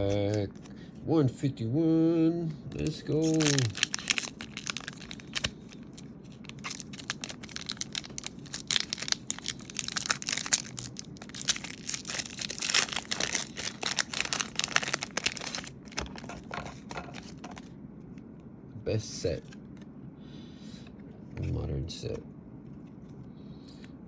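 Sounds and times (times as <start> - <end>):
foil wrapper tearing and crinkling: 2.8 - 17.7.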